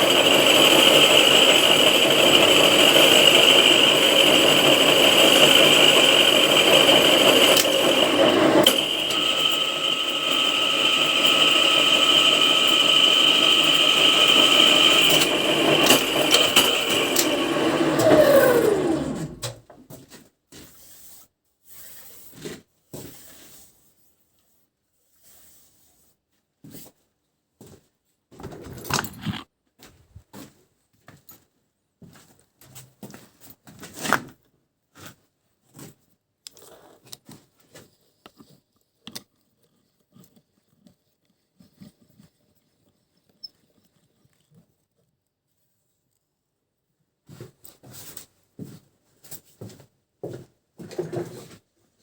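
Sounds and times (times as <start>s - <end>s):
handling clicks and scrapes: 28.4s - 30.3s.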